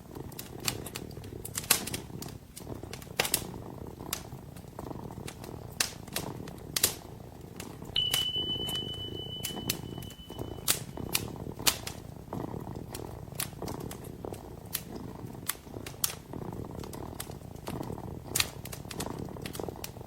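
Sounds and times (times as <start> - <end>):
kitten purring: 0.0 - 7.9, 11.8 - 20.0
wood fire crackling and popping: 0.0 - 20.0
thin high whistle: 8.0 - 11.2.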